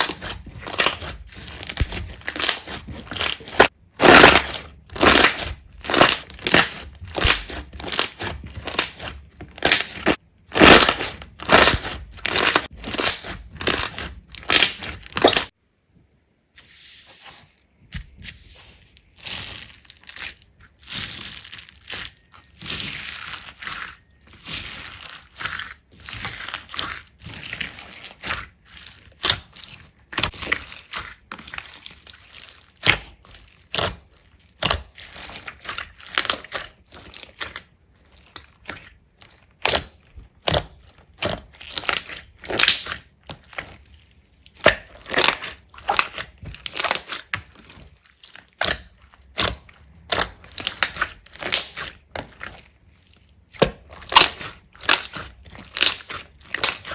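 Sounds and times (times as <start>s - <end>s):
slime crackling when squeezed: 0.0s - 15.5s, 44.5s - 52.6s, 54.0s - 56.9s.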